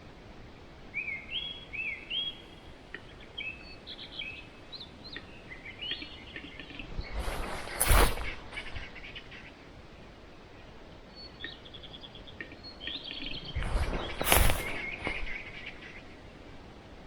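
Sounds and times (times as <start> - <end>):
birds chirping: 0.8 - 17.0
rustling crunching burst: 6.9 - 9.1, 13.3 - 16.1.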